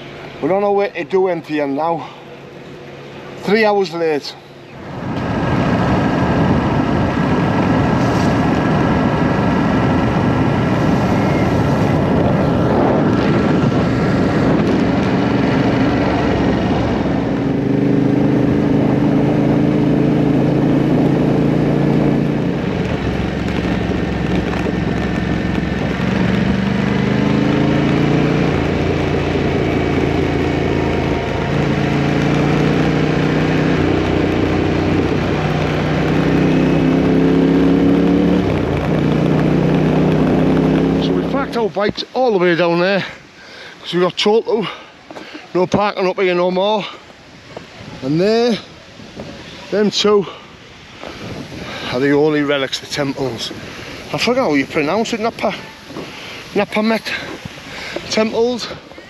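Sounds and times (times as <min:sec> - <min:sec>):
wind rush: 0:04.8 - 0:59.0
motorcycle engine running: 0:04.9 - 0:41.6.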